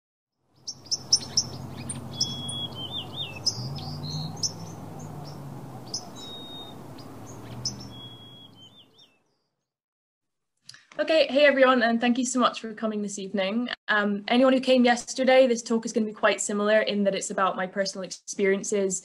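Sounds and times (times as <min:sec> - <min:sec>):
birds chirping: 0:00.6 - 0:09.5
low steady rumble: 0:00.9 - 0:08.4.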